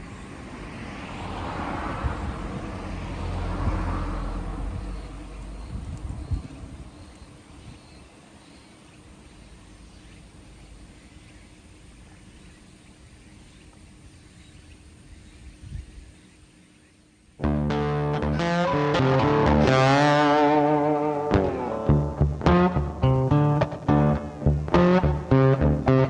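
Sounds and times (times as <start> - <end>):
car passing: 0.0 - 7.0, 17.4 - 26.0.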